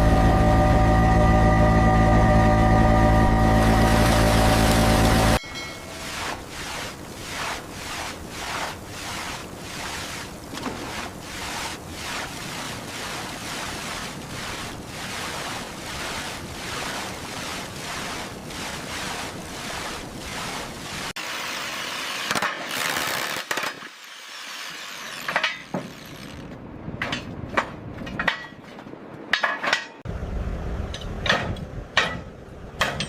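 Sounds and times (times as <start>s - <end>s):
water washing in waves: 2.9s - 22.3s
wind noise: 30.4s - 32.3s.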